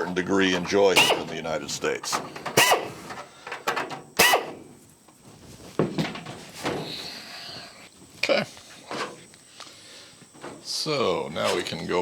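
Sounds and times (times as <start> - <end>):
tools clicking and knocking: 2.0 - 4.6.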